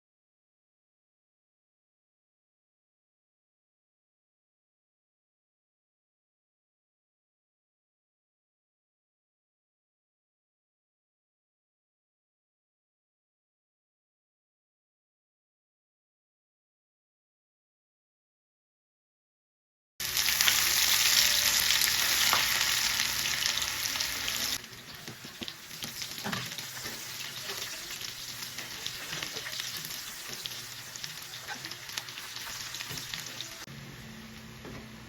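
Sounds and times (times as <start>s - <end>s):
food sizzling in hot oil: 20.0s - 33.7s.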